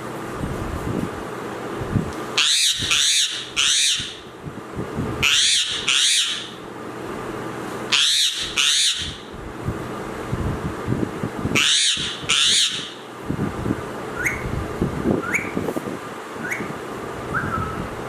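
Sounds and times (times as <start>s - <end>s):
parrot giving harsh calls: 2.4s - 4.2s, 5.2s - 6.6s, 7.9s - 9.3s, 11.5s - 13.1s.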